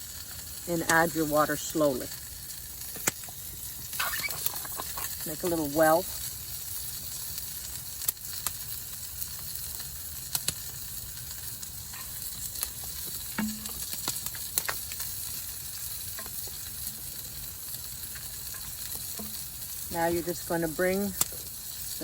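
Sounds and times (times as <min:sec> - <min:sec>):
chicken sizzling in a pan: 0:00.0 - 0:22.0
sharp oil pops: 0:02.9 - 0:03.4, 0:13.3 - 0:14.8.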